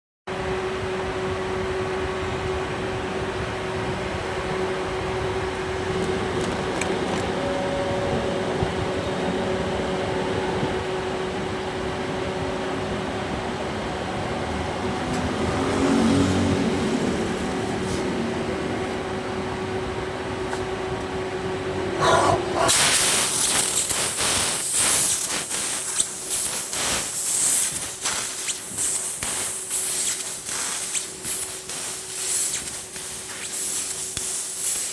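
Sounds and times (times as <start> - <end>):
cutting machine humming: 21.9 - 24.2
loud hissing with crackling: 22.0 - 34.9.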